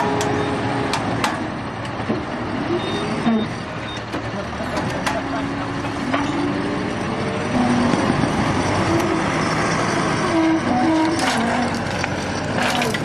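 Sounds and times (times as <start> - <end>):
heavy vehicle engine running: 0.0 - 13.0.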